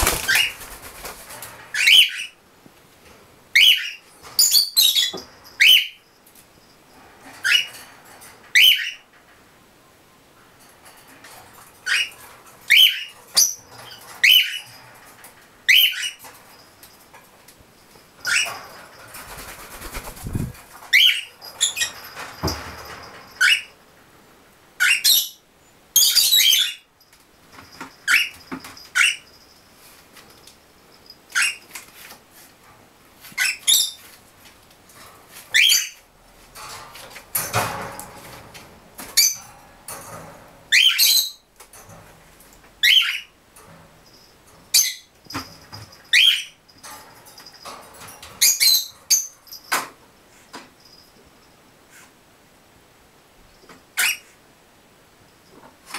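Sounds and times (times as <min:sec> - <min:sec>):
wing flapping and rustling: 0:00.0 - 0:02.0, 0:18.2 - 0:23.4
parrot chirping rapidly: 0:01.7 - 0:02.4, 0:15.7 - 0:16.2
parrots calling: 0:42.8 - 0:43.3, 0:54.0 - 0:54.2.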